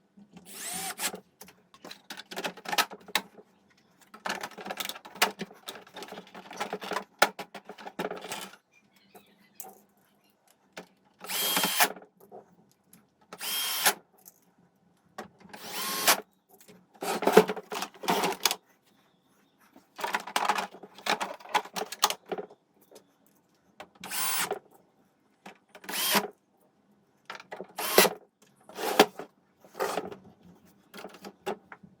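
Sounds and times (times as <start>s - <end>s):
small power tool bursts: 0.5s - 1.1s, 13.4s - 14.0s, 15.6s - 16.2s, 25.9s - 26.2s.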